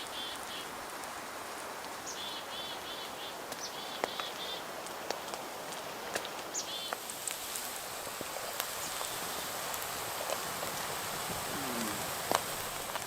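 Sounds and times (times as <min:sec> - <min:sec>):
bread sizzling in a pan: 0:00.0 - 0:13.0
small bird calling: 0:11.2 - 0:12.6.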